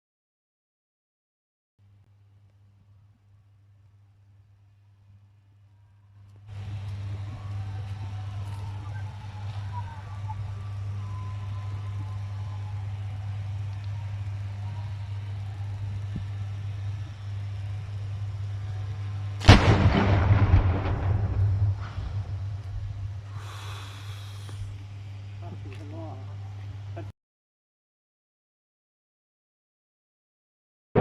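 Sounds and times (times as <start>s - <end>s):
transformer electrical hum: 1.8s - 27.1s
loud bang with crackling rush: 19.4s - 23.3s.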